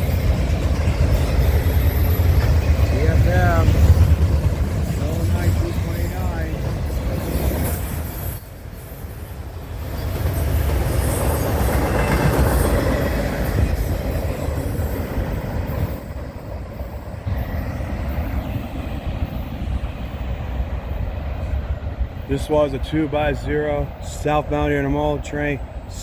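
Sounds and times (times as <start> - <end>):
freight train rumbling past: 0.0 - 26.0.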